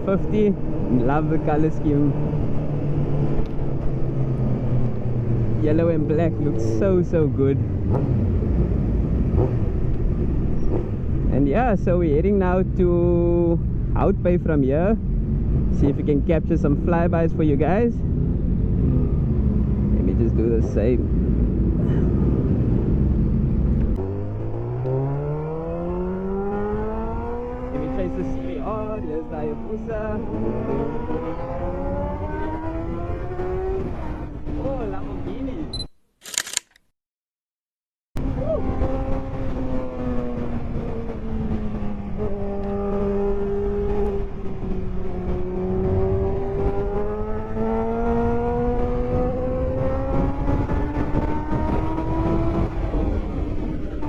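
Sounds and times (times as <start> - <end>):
heavy wind rumble: 0.0 - 35.8, 38.2 - 54.0
motorcycle engine revving: 18.0 - 35.2, 38.2 - 54.0
wind buffeting microphone: 38.2 - 54.0.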